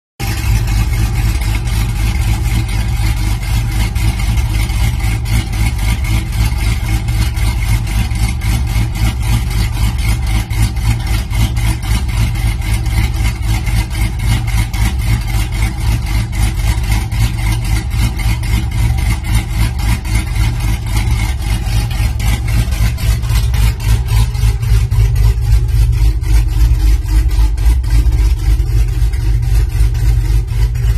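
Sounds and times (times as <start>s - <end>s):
car engine idling: 0.2s - 30.9s.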